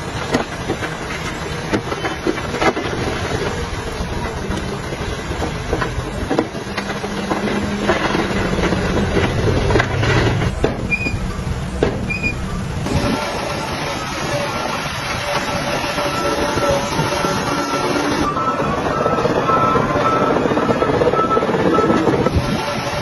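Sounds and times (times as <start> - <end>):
diesel truck engine under load: 0.0 - 23.0
knocks and clatter: 0.1 - 12.1.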